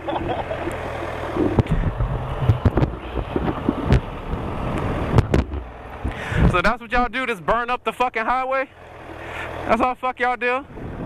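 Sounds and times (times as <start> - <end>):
motorcycle engine idling: 0.0 - 10.0
wind on microphone: 1.4 - 6.6, 10.7 - 11.0
sharp knocks: 5.1 - 6.2.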